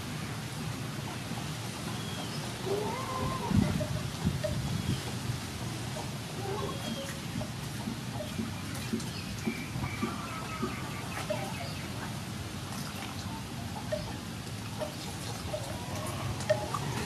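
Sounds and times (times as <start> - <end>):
birds calling: 5.8 - 12.2.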